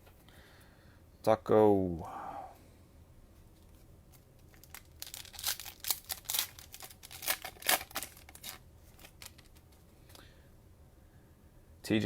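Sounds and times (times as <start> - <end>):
cellophane wrapper crinkling and tearing: 4.1 - 9.7.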